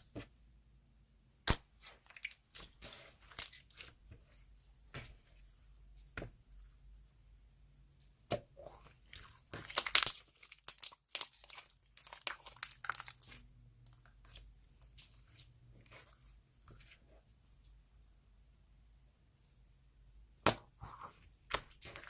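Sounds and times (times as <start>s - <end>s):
clay slime squeezed by hand: 8.3s - 13.4s.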